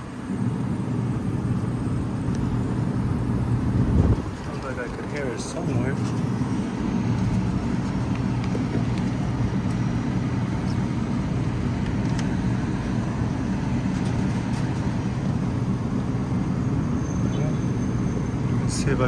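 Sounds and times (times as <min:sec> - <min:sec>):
low rumble: 0:03.2 - 0:05.2.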